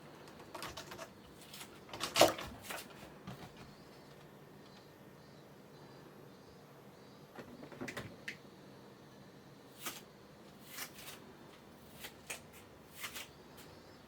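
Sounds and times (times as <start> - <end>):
kittens rustling and tapping: 0.2 - 4.9.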